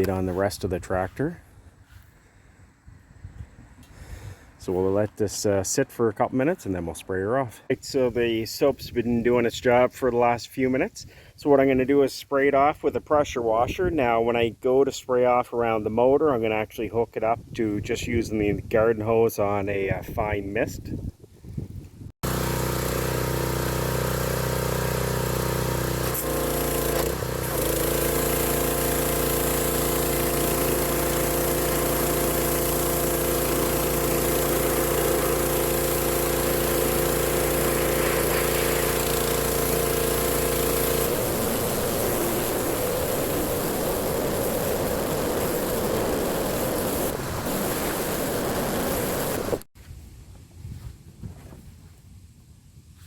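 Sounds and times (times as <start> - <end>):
pressure washer running: 22.2 - 49.7
spraying water hiss: 26.0 - 49.7.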